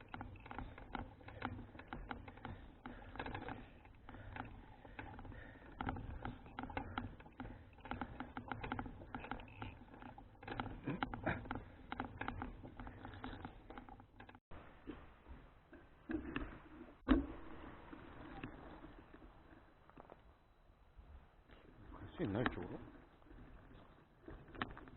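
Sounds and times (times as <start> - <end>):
bicycle rattling and clicking: 0.0 - 14.4, 22.1 - 24.9.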